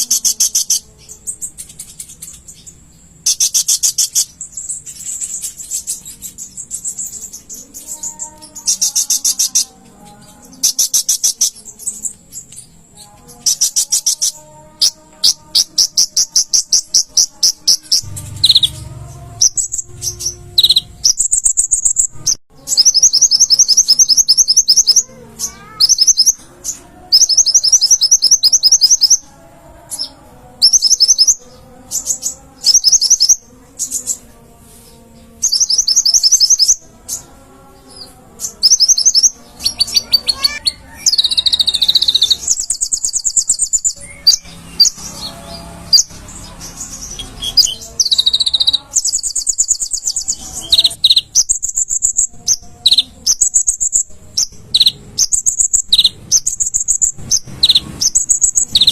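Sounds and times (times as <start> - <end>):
sunbird trilling: 13.4 - 29.3, 38.5 - 58.9.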